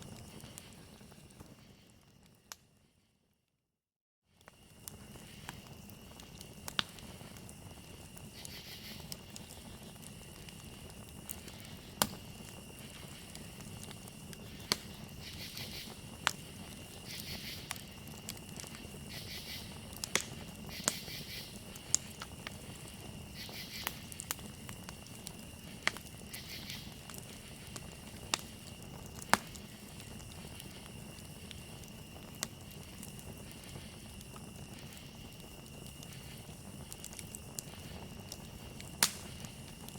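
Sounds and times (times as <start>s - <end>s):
crickets trilling: 0.0s - 2.9s, 4.3s - 39.9s
campfire crackling: 0.0s - 3.0s, 4.3s - 39.9s
insect chirping: 4.4s - 39.9s.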